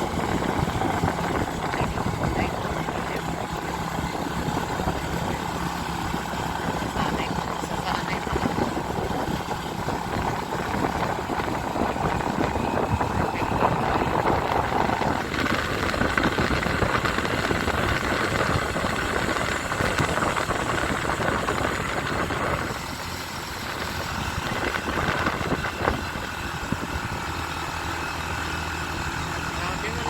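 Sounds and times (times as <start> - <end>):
motorcycle engine running: 0.0 - 30.0
wind and road noise: 0.0 - 30.0.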